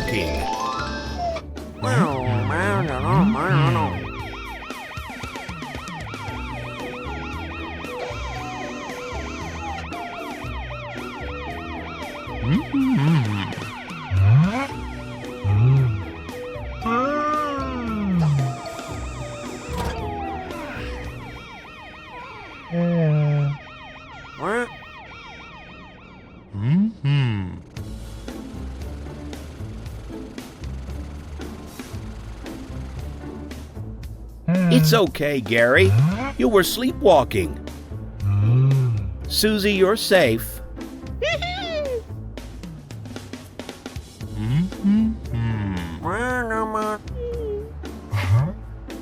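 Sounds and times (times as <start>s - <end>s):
cartoon siren yelping: 1.8s - 4.2s, 16.8s - 23.6s, 24.4s - 24.8s, 41.2s - 42.0s
cartoon police siren yelping: 1.8s - 14.8s, 16.8s - 24.8s, 34.7s - 35.9s, 41.2s - 42.0s.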